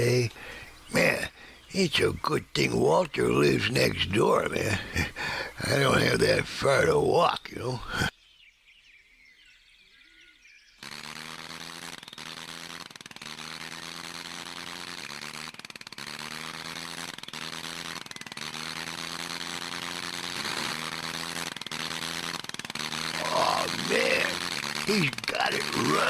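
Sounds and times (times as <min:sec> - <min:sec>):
faint birdsong: 0:00.0 - 0:10.9.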